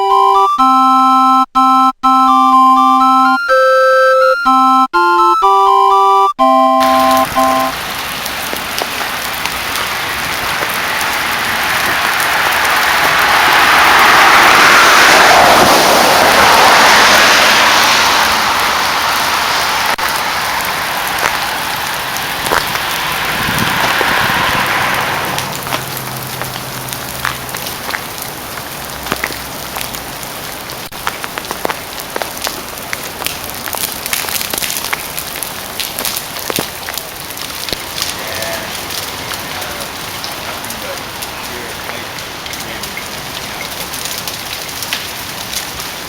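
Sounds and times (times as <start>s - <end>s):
rain hissing: 6.8s - 46.0s
drops ticking on ice: 20.0s - 24.2s, 25.3s - 30.0s, 30.9s - 46.0s.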